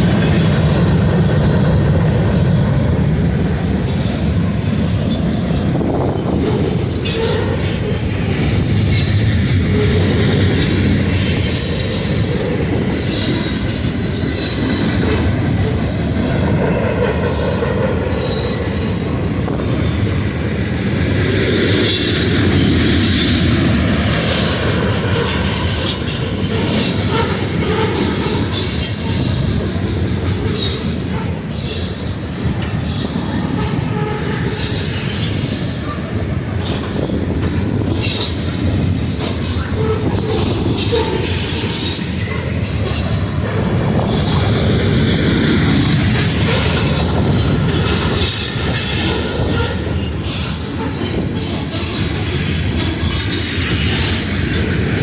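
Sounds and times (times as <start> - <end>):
train wheels rumbling on rail: 0.0 - 55.0
faint high wheel squeal: 30.6 - 37.0, 45.8 - 54.2.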